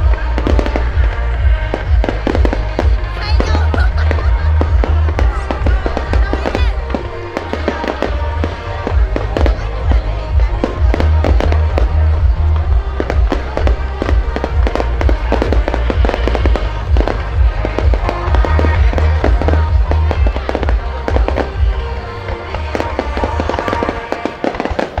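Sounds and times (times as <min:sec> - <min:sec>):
fireworks crackling: 0:00.0 - 0:25.0.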